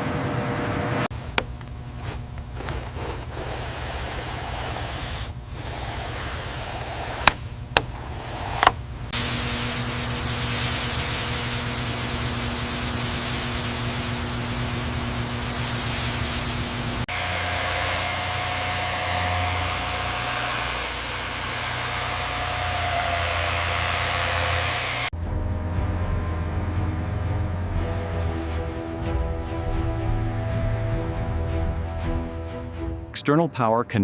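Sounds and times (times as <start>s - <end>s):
machine hum with hiss: 0.0s - 25.1s
steady low tone: 25.2s - 34.0s.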